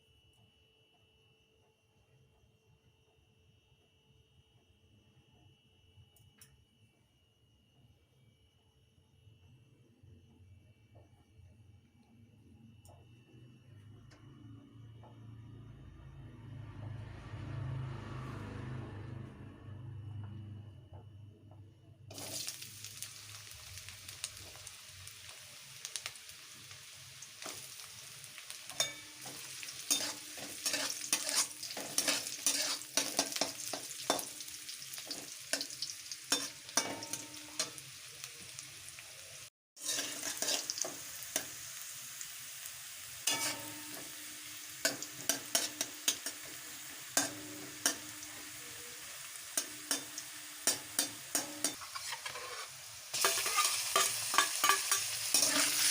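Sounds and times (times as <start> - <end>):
food sizzling in a pan: 22.1 - 55.9.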